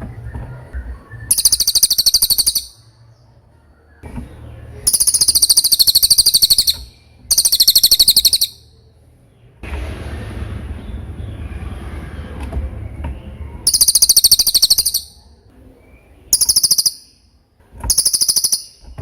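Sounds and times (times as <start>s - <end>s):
songbird high trills: 1.2s - 2.9s, 4.8s - 8.7s, 13.7s - 15.2s, 16.3s - 17.2s, 17.9s - 18.8s.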